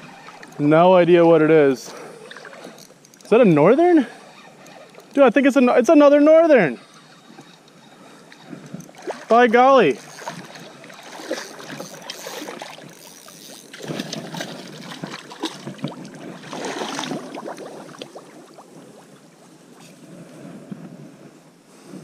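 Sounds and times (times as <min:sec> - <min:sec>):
water splashing at boat side: 0:08.3 - 0:19.5.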